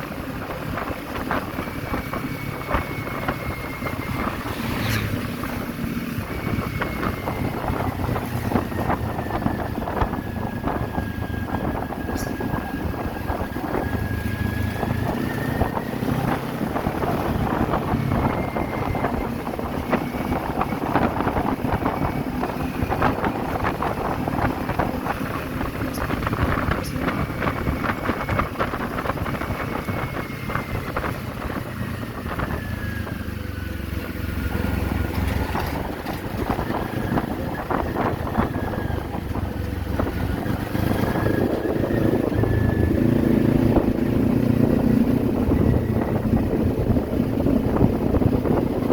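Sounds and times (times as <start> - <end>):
motorcycle engine running: 0.0 - 48.9
wind buffeting microphone: 0.0 - 48.9.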